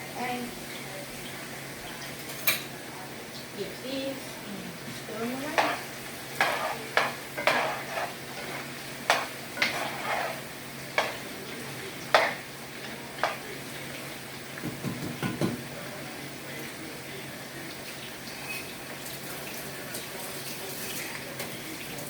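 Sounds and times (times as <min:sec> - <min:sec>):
fries sizzling in hot oil: 0:00.0 - 0:22.0
utensil scraping and clinking pot: 0:05.3 - 0:13.5.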